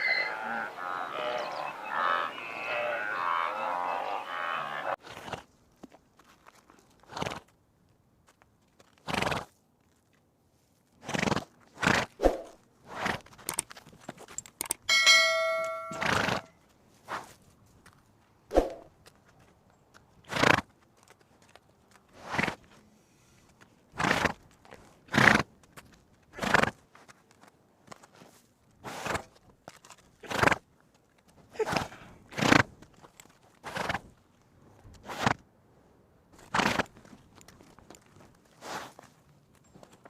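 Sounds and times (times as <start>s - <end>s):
zebra barking calls: 0.0s - 5.0s
steady ringing tone: 14.9s - 16.5s.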